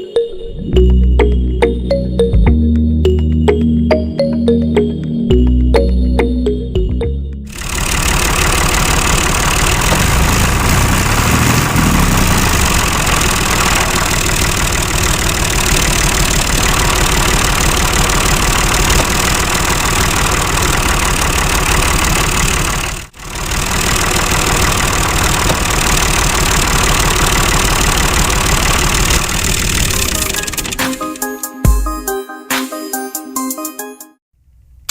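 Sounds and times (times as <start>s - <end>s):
small machine rattling: 7.5s - 30.8s.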